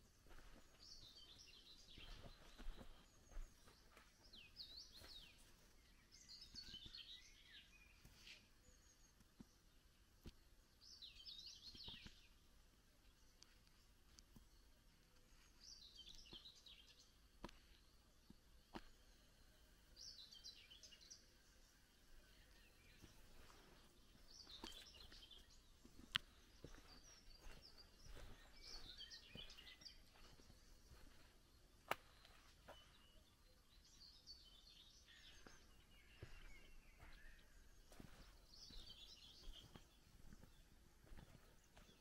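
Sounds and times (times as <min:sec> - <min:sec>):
soft footsteps: 0:00.0 - 0:07.2, 0:13.0 - 0:19.2, 0:22.1 - 0:33.3, 0:35.0 - 0:42.0
faint songbird chirping: 0:00.0 - 0:42.0.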